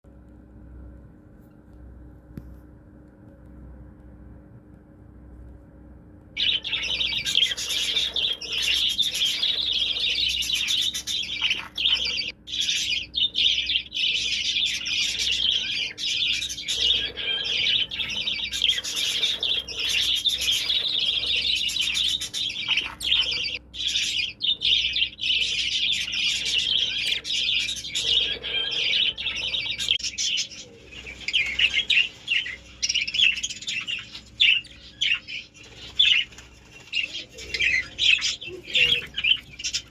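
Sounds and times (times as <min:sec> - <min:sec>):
budgerigar chirping: 0:06.4 - 0:36.3.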